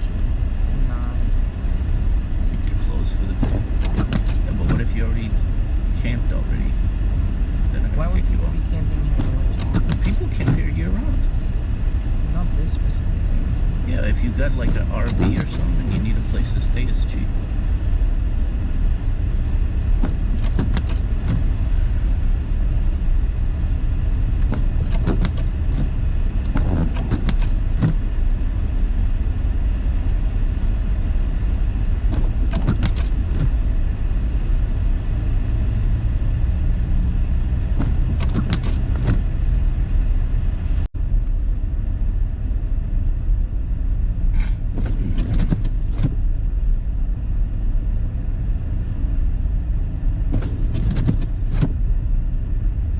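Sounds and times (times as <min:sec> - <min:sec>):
car engine and tyres rumbling: 0:00.0 - 0:52.9
short knocks or scrapes: 0:20.0 - 0:22.1, 0:24.4 - 0:28.0, 0:32.1 - 0:33.6, 0:37.8 - 0:39.3, 0:44.4 - 0:46.2, 0:50.3 - 0:51.8.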